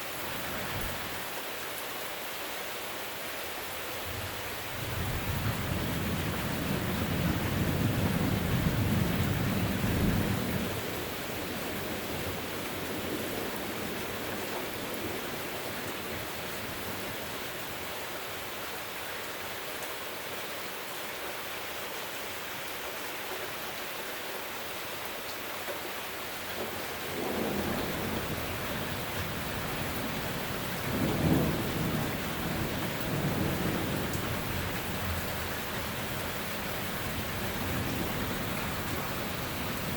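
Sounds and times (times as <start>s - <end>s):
steady rain: 0.0s - 39.9s
thunder rumbling: 4.8s - 17.1s, 26.6s - 39.9s.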